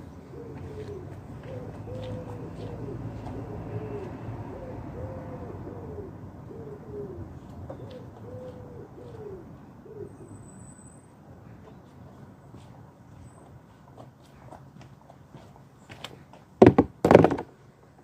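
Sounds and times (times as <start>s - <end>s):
pigeon cooing: 0.2s - 10.4s.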